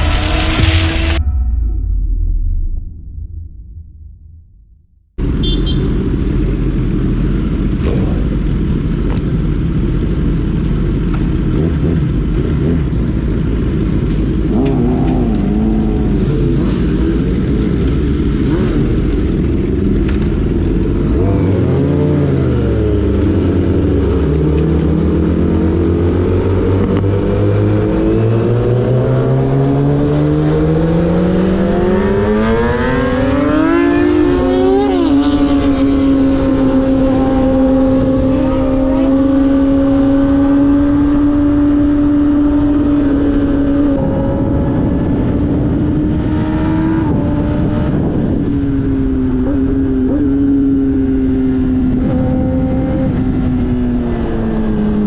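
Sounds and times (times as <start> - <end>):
motorcycle engine accelerating: 5.2 - 55.0
wind rush: 25.0 - 55.0.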